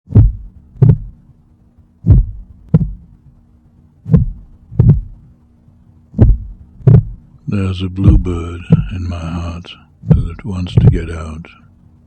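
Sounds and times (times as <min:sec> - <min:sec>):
heartbeat thumps: 0:00.1 - 0:01.4, 0:02.0 - 0:03.2, 0:04.0 - 0:05.4, 0:06.1 - 0:07.3, 0:08.0 - 0:09.3, 0:10.0 - 0:11.2
faint steady hum: 0:00.1 - 0:12.0.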